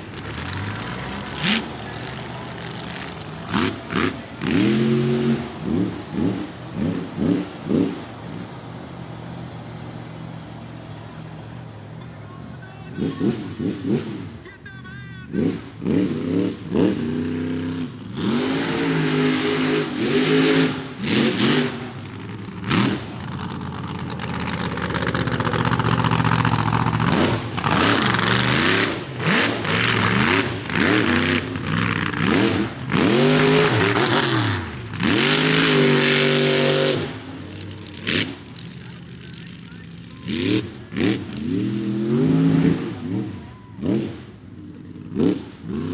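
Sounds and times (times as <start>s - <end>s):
truck engine revving hard: 0.0s - 11.8s, 12.9s - 14.4s, 15.3s - 45.9s.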